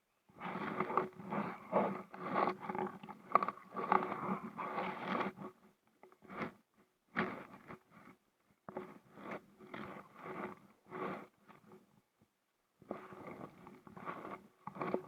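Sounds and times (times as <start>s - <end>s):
kayak paddle splashes and scrapes: 0.6s - 5.5s.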